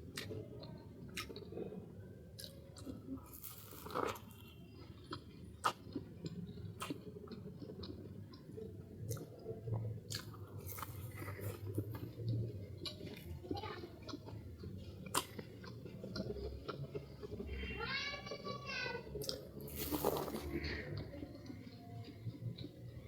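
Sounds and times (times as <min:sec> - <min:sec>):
chewing pastry: 0:00.0 - 0:17.6, 0:18.3 - 0:23.0
crisp crunches: 0:03.2 - 0:04.5, 0:19.7 - 0:20.8.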